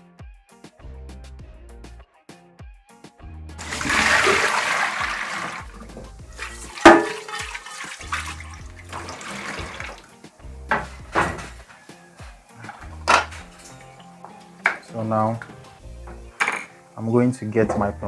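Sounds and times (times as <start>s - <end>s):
water splashing: 3.6s - 10.2s.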